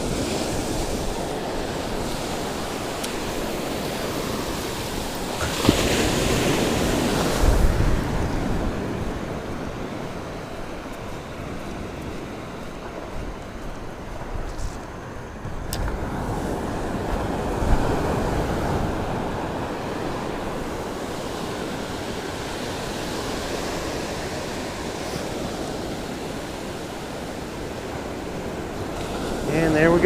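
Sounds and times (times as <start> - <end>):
surf washing onto beach: 0.0 - 30.0
wind on microphone: 0.0 - 30.0.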